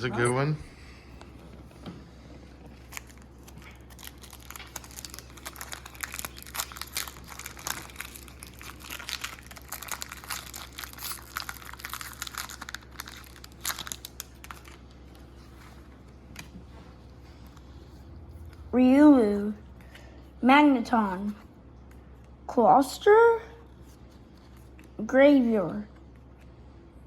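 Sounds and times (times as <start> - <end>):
low steady hum: 0.0 - 27.0
foil wrapper crinkling: 2.7 - 16.5.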